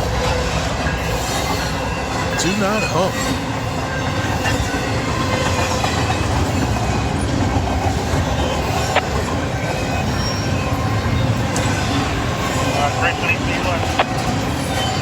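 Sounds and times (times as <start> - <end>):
train wheels rumbling on rails: 3.2 - 15.0.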